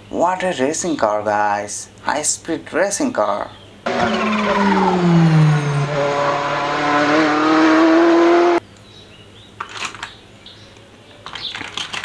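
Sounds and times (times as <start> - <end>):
racing car engine revving: 3.9 - 8.6.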